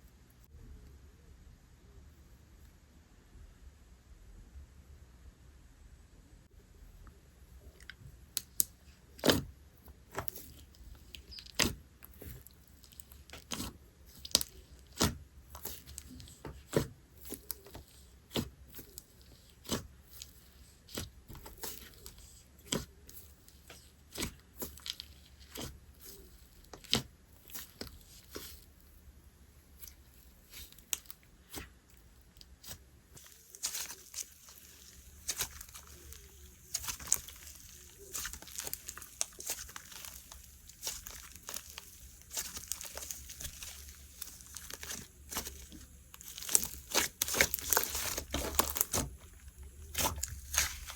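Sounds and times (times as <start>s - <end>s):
slime popping and crackling: 10.1s - 23.0s, 32.3s - 50.9s.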